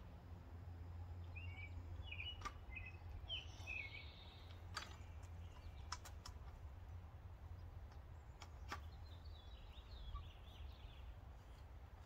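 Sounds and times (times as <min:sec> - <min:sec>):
low outdoor background rumble: 0:00.0 - 0:12.0
small bird chirping faintly: 0:07.4 - 0:12.0.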